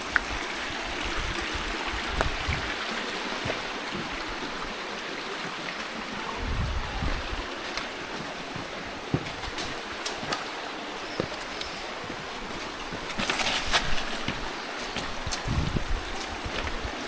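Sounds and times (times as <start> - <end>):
stream water rushing and trickling: 0.0 - 17.0
wind buffeting microphone: 0.2 - 4.7, 6.2 - 8.0, 12.2 - 17.0.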